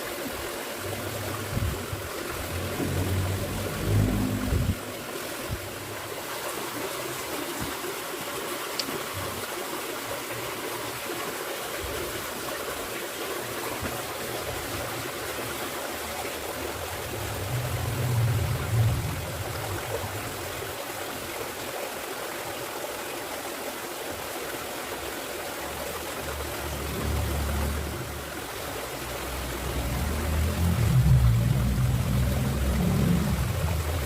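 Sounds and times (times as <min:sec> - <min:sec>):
steady rushing noise: 0:00.7 - 0:06.2, 0:13.7 - 0:20.8, 0:26.2 - 0:34.0.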